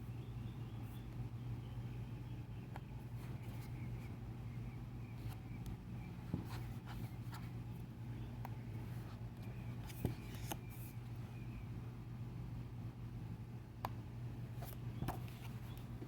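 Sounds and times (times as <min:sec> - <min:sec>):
paper pages rustling: 0:09.8 - 0:11.0
small taps on book: 0:15.0 - 0:15.8.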